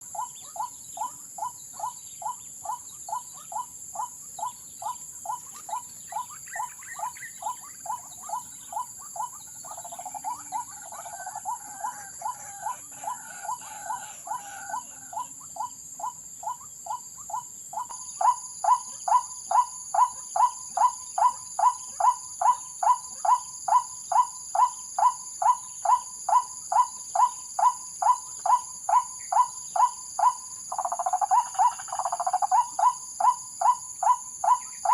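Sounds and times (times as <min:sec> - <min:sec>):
high-pitched insect trilling: 0:00.0 - 0:34.9
waterhen calling: 0:05.3 - 0:17.9.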